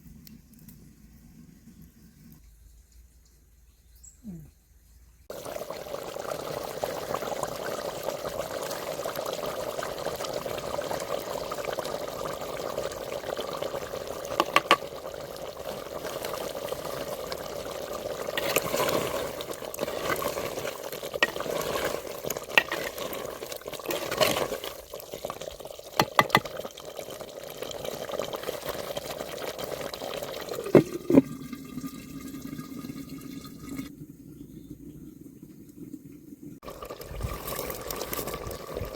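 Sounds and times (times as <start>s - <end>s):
water running and splashing: 5.3s - 33.9s.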